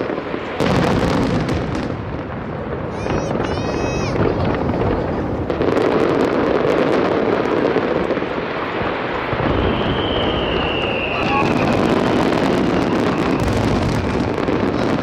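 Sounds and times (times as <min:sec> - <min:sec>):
fireworks bursting and crackling: 0:00.0 - 0:15.0
high firework whistle: 0:02.9 - 0:04.3, 0:09.2 - 0:14.9.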